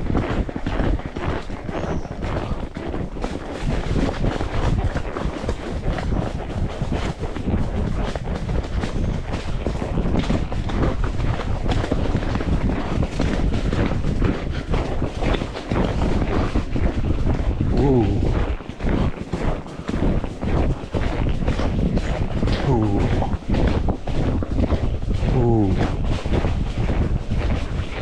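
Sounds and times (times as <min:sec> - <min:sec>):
horse hooves clopping: 0:00.0 - 0:28.0
wind buffeting microphone: 0:00.0 - 0:28.0.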